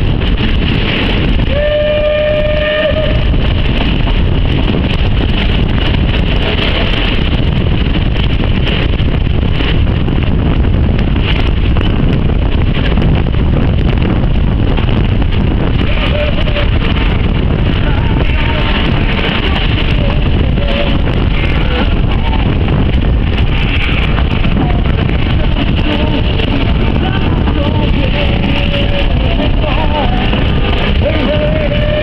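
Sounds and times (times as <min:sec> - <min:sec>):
train rumbling: 0:00.0 - 0:32.0
wind noise: 0:00.0 - 0:32.0
locomotive whistle: 0:01.4 - 0:03.6, 0:15.8 - 0:17.1, 0:30.5 - 0:32.0.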